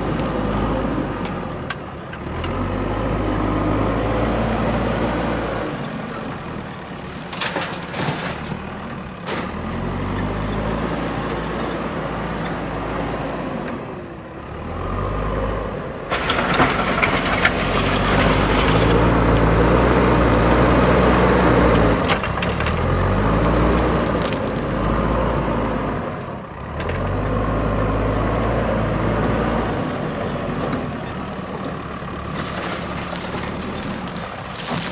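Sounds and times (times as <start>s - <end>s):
diesel engine revving: 0.0s - 6.6s, 9.5s - 34.9s.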